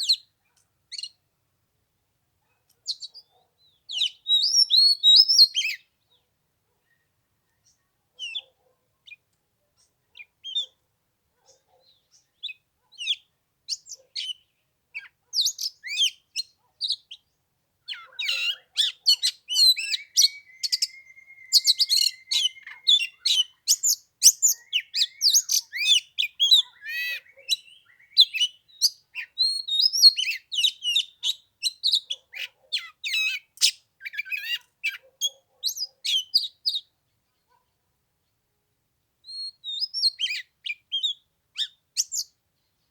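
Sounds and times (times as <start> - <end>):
bird singing whistles and chirps: 2.9 - 5.9, 17.9 - 32.2, 39.2 - 42.3.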